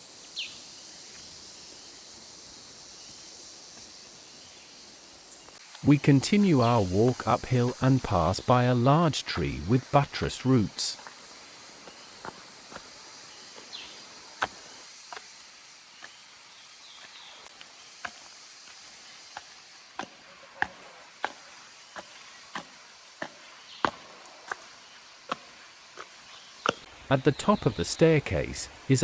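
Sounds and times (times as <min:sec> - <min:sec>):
forest insects hissing: 0:00.0 - 0:29.0
footsteps on forest trail: 0:06.6 - 0:08.6, 0:09.6 - 0:26.9.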